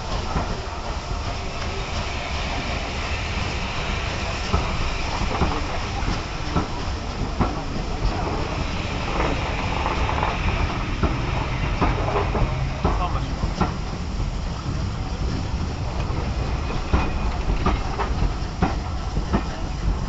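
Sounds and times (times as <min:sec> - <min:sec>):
train wheels rumbling on rails: 0:00.0 - 0:20.0
sharp clicks and knocks: 0:09.1 - 0:14.0.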